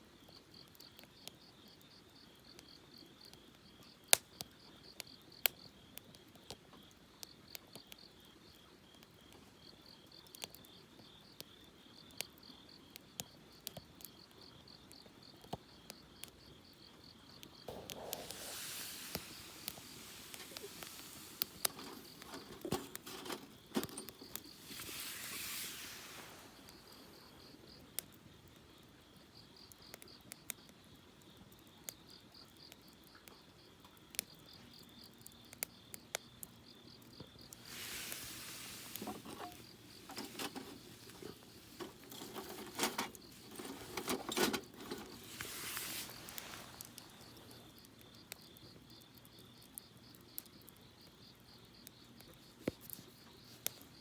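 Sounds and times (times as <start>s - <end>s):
campfire crackling and popping: 0.2s - 54.0s
insects chirring: 0.2s - 54.0s
rushes of hiss: 17.7s - 27.6s, 37.5s - 47.6s.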